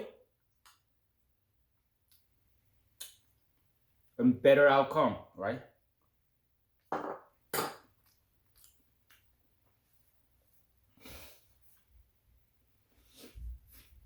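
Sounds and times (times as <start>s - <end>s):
person sniffing: 10.9s - 11.6s, 13.0s - 13.8s.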